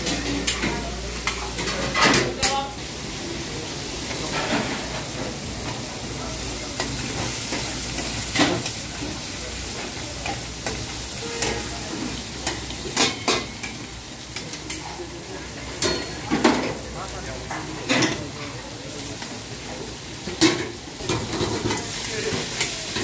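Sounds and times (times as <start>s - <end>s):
metal ladles clanking on pans: 0.0s - 2.8s, 4.0s - 5.9s, 6.5s - 23.0s
chicken sizzling in hot oil: 2.7s - 23.0s.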